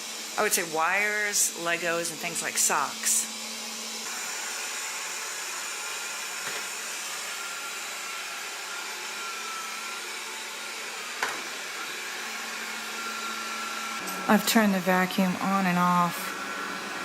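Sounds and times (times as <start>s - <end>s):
robot vacuum running: 0.0s - 17.0s.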